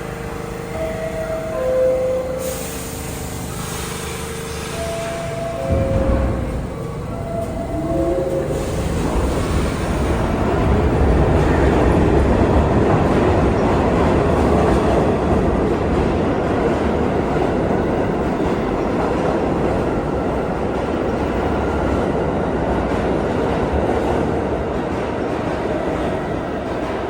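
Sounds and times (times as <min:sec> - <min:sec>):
subway train wheels rumbling: 0:00.0 - 0:27.0.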